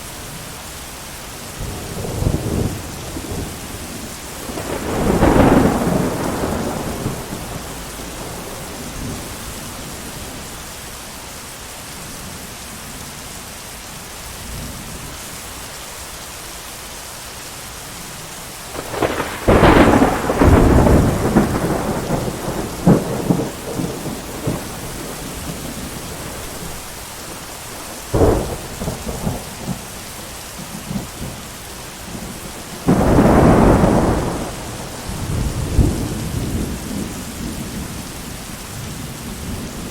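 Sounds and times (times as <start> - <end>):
heavy rain: 0.0 - 39.9
thunder rolling: 1.6 - 9.8, 18.7 - 30.0, 32.1 - 38.0.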